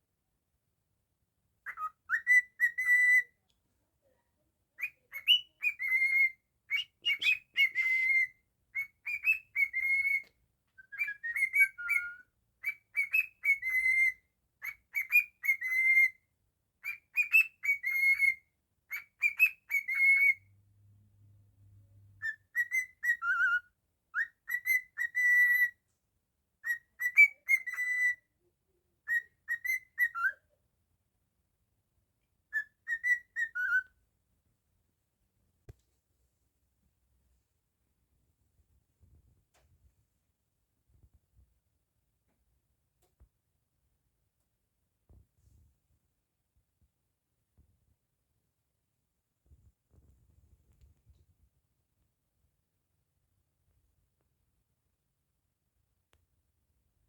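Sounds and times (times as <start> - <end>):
cockatiel whistling: 1.6 - 3.4, 4.8 - 16.2, 16.8 - 20.5, 22.2 - 25.8, 26.6 - 28.3, 29.1 - 30.4, 32.5 - 33.9.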